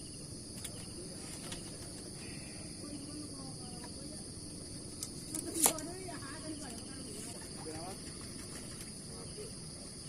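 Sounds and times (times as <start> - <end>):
faint distant voices: 0.0 - 10.0
insect chirring: 0.0 - 10.0
low background rumble: 0.0 - 10.0.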